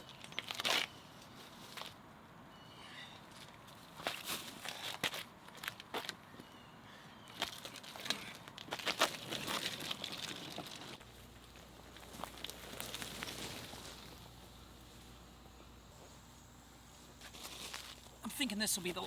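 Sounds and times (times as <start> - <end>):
crunching and scraping in sand: 7.3 - 19.0.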